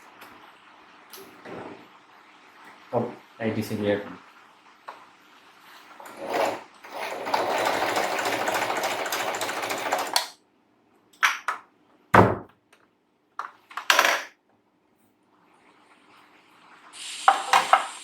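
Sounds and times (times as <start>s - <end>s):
sewing machine clattering: 6.0s - 10.3s.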